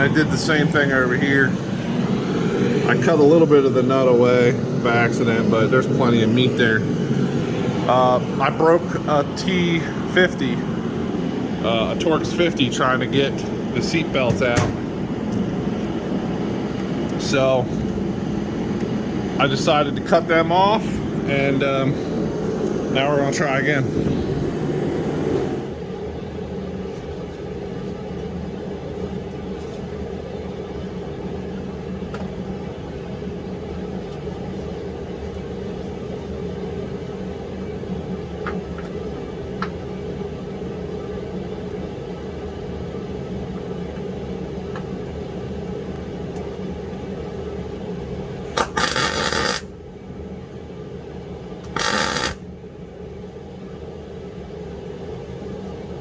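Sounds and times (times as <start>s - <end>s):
heater humming: 0.0s - 26.0s, 47.7s - 49.8s, 51.7s - 52.5s
power tool bursts: 48.6s - 49.7s, 51.7s - 52.4s.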